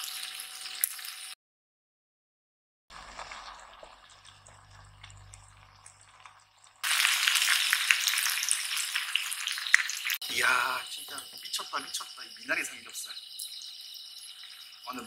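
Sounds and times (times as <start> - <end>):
meat sizzling in hot pan: 0.0 - 1.4, 6.2 - 11.6.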